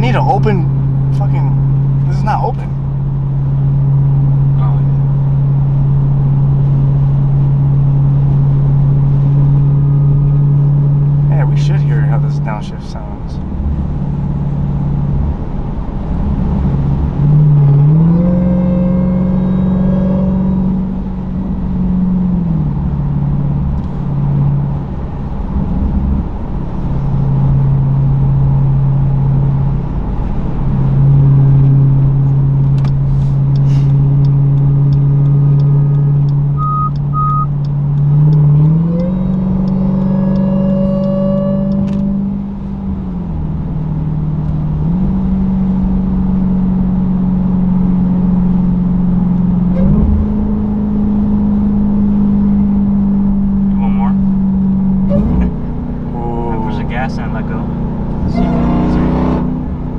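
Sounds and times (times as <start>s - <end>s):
car engine revving: 0.0s - 59.9s
supercharger whine: 0.0s - 59.9s
short beeps: 36.6s - 37.6s.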